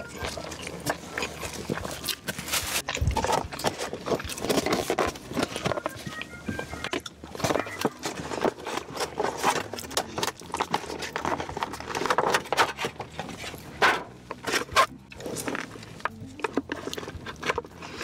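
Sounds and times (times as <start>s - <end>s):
crisp crunching and chewing: 0.0s - 18.0s.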